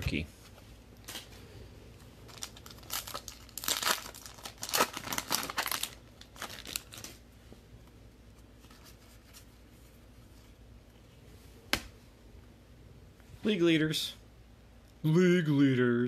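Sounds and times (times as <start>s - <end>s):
plastic wrapper tearing and crinkling: 2.2s - 7.2s.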